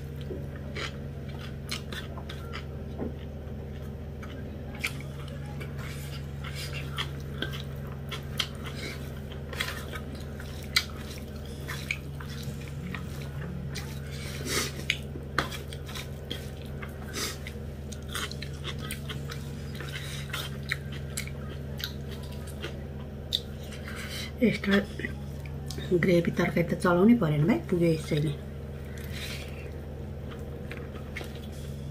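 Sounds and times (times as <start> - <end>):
person chewing food: 0.0 - 25.8, 28.6 - 31.9
steady low hum: 0.0 - 31.9.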